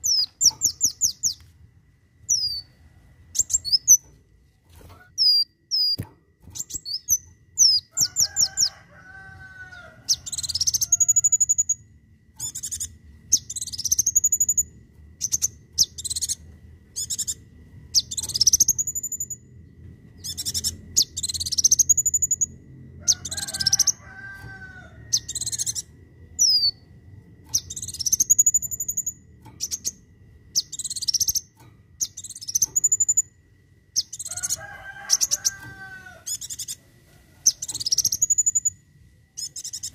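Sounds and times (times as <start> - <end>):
sharp bird chips: 0.0 - 1.4, 4.9 - 11.8, 12.4 - 19.4, 20.2 - 22.5, 23.1 - 26.8, 27.5 - 33.3, 34.0 - 36.8, 37.5 - 38.8, 39.4 - 39.9
sunbird high calls: 20.2 - 26.8, 34.0 - 39.9.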